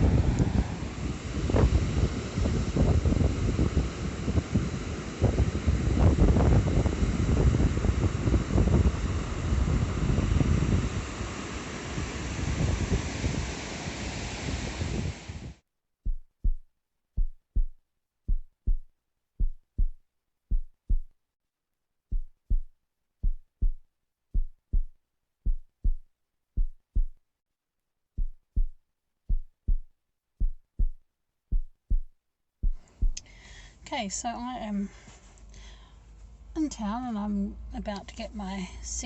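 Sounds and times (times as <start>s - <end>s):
wind on microphone: 0.0s - 15.6s
heartbeat thuds: 16.0s - 21.2s, 22.1s - 27.2s, 28.2s - 33.3s.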